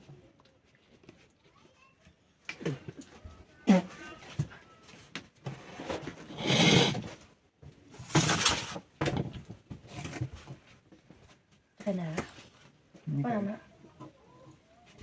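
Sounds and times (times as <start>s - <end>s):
scraping and knocking handling noises: 5.5s - 7.2s, 8.0s - 11.2s.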